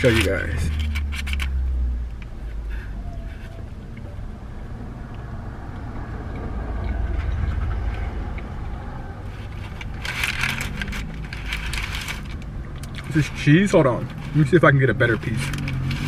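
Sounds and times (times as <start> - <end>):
clatter or rustle: 0.0 - 1.6, 9.3 - 16.0
low rumble inside car: 0.0 - 16.0.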